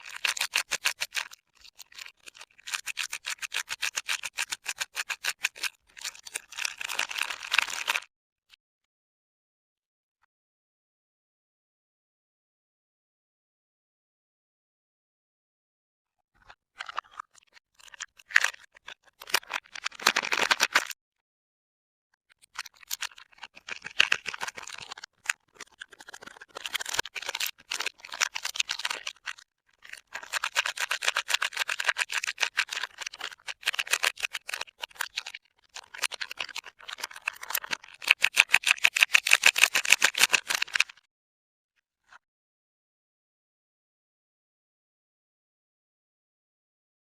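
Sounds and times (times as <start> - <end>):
wrapper crinkling: 19.2 - 20.9, 30.1 - 41.0.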